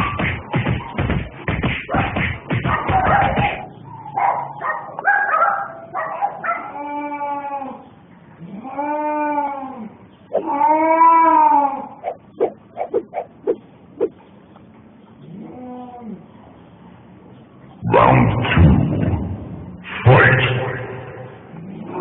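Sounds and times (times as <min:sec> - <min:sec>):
cats fighting and yowling: 0:05.8 - 0:14.1.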